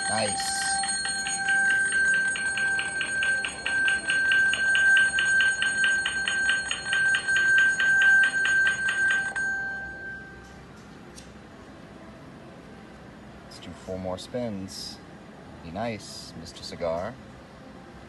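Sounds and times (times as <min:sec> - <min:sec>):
slot machine bell dings: 0:00.0 - 0:10.4
steady ringing tone: 0:00.0 - 0:10.6.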